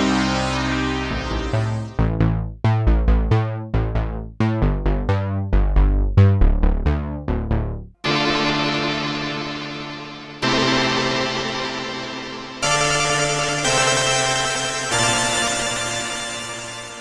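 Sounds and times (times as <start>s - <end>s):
sustained synthesizer pad: 0.0s - 2.0s, 8.0s - 17.0s
plucky synthesizer notes: 0.0s - 17.0s.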